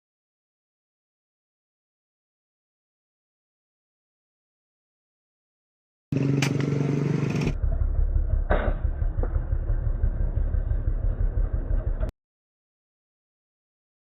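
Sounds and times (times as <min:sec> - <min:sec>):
low pulsing engine-like rumble: 0:07.4 - 0:12.1
steady pitched humming: 0:07.4 - 0:12.1.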